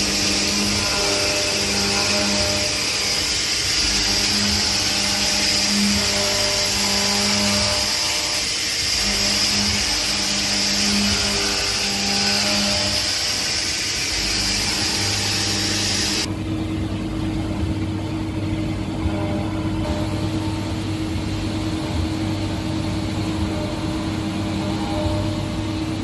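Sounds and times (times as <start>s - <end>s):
loud hiss: 0.0s - 16.3s
milling machine humming: 0.0s - 26.0s.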